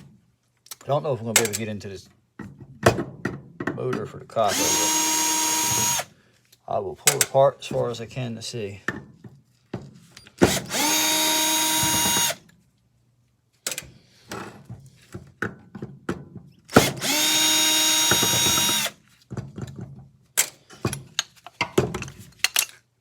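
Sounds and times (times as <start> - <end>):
power drill spinning: 4.4 - 6.1, 10.4 - 12.4, 16.7 - 19.0
clatter of metal parts: 19.6 - 22.9.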